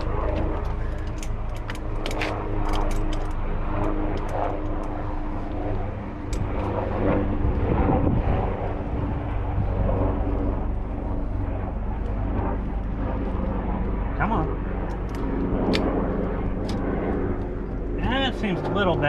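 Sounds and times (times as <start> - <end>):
light metallic clicks and clinks: 0.6 - 5.0.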